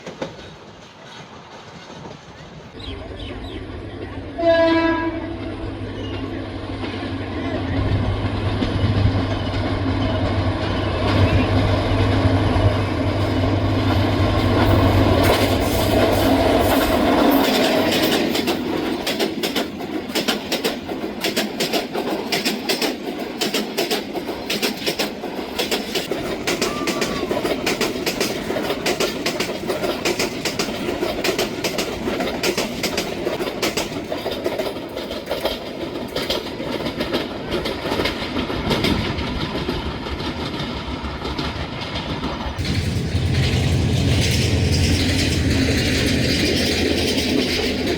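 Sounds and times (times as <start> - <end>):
train coach rolling on track: 0.0 - 47.9
wheel clacks and knocks: 14.5 - 47.9.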